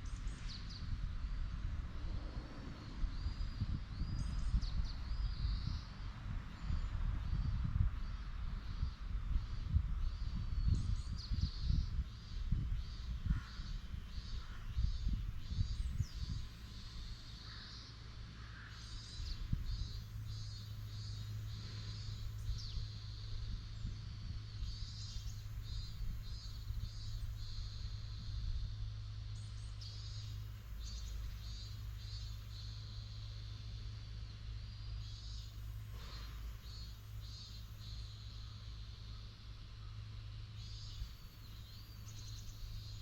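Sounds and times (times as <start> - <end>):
crow cawing: 18.4 - 18.8
birds calling: 29.3 - 43.0.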